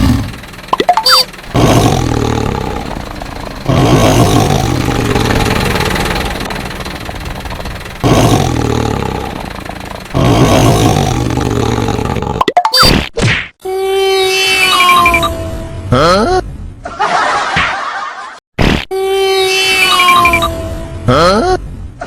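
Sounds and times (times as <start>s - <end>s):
animal roars: 0.0s - 0.4s, 1.5s - 6.6s, 8.0s - 12.4s
cartoon whistle glide: 13.8s - 15.7s, 19.1s - 20.9s.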